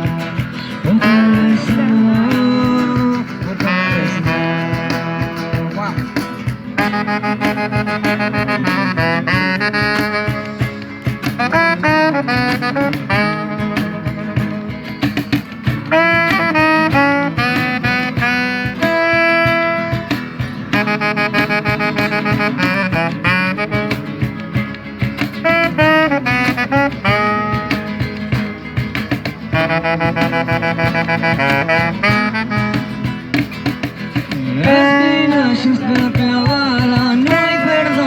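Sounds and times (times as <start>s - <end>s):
steady drum beat: 0.0s - 38.0s
horn playing melody: 3.1s - 5.7s, 6.8s - 15.0s, 15.8s - 24.5s, 25.4s - 28.6s, 29.5s - 33.6s, 34.6s - 38.0s.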